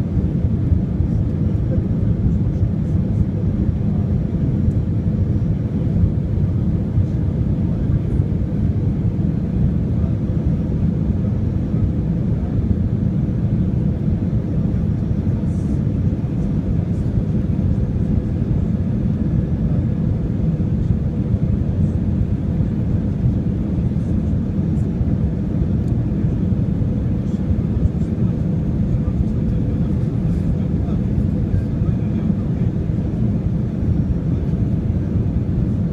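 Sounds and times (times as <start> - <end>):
airliner engines rumbling: 0.0 - 35.9
faint steady hum: 0.0 - 35.9.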